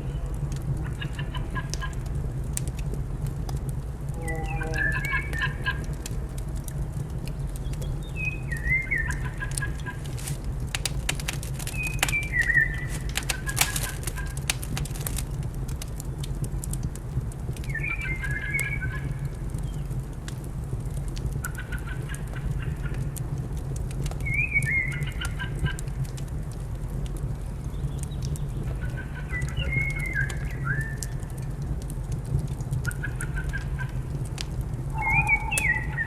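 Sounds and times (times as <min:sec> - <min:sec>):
fire crackling with pops: 0:00.0 - 0:36.0
birds calling: 0:00.7 - 0:02.1, 0:04.2 - 0:06.0, 0:07.3 - 0:15.4, 0:17.7 - 0:19.9, 0:27.7 - 0:31.4, 0:32.8 - 0:34.1, 0:34.9 - 0:36.0
low hum: 0:34.0 - 0:36.0.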